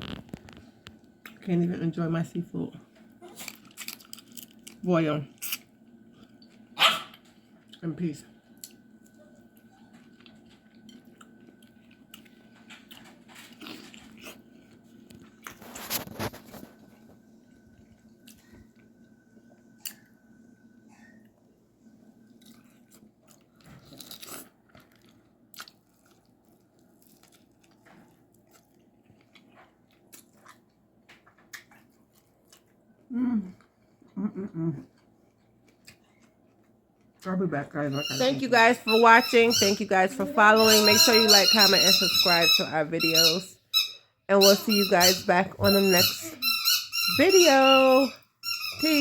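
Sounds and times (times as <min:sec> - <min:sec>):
person chewing and smacking: 0:08.5 - 0:17.0, 0:22.2 - 0:37.3.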